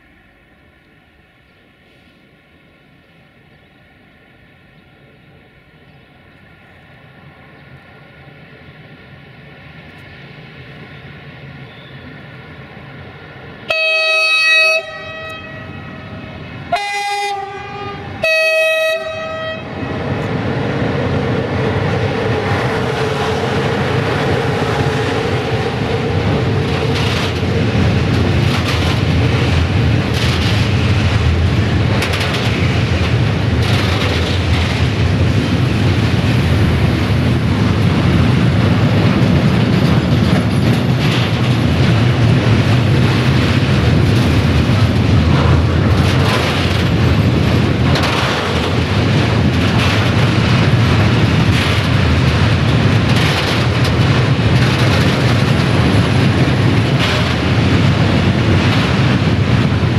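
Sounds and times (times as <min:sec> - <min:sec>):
train wheels on rails: 0:00.0 - 0:59.9
locomotive horn blasts: 0:13.7 - 0:19.8
clattering over rail joints: 0:26.4 - 0:35.1, 0:39.0 - 0:59.9.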